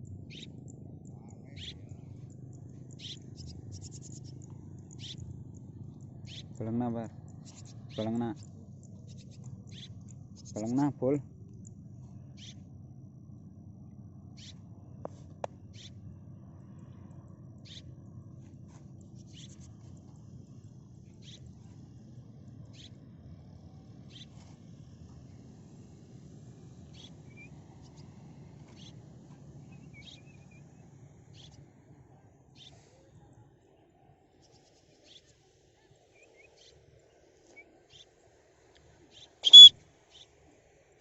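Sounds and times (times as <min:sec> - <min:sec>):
faint low rumble: 0:00.0 - 0:34.3
swallows chirping: 0:00.3 - 0:00.5, 0:01.3 - 0:05.2, 0:06.2 - 0:10.9, 0:39.4 - 0:39.7.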